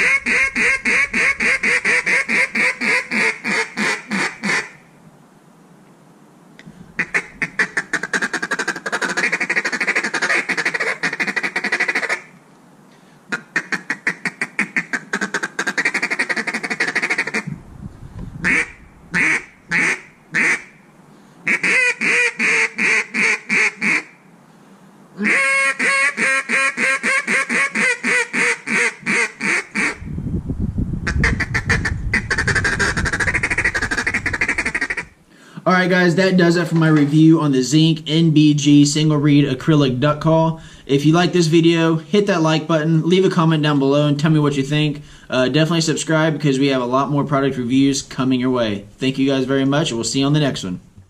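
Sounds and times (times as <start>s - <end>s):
duck call rolling runs: 0.0s - 4.8s, 7.0s - 12.3s, 13.3s - 17.5s, 18.4s - 20.7s, 21.5s - 24.1s, 25.2s - 30.0s, 31.0s - 35.2s
duck call single quacks: 0.0s - 4.8s, 7.0s - 12.3s, 13.3s - 17.5s, 18.4s - 20.8s, 21.5s - 24.2s, 25.2s - 30.0s, 31.2s - 35.2s.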